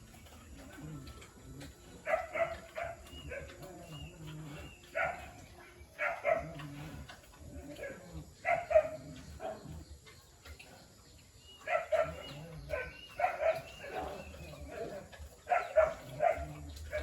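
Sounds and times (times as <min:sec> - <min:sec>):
dog barking: 0:02.0 - 0:03.7, 0:04.8 - 0:05.4, 0:06.0 - 0:06.7, 0:07.8 - 0:09.6, 0:11.6 - 0:17.0.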